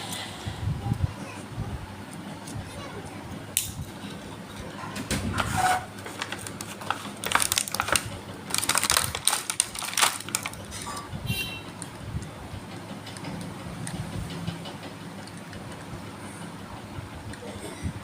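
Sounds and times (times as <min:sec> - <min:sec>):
toy packaging crackling: 0:06.0 - 0:10.9.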